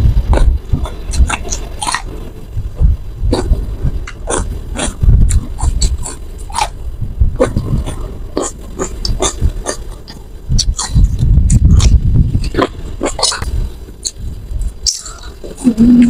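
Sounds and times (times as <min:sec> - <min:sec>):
wet chewing and lip smacking: 0:07.4 - 0:15.6.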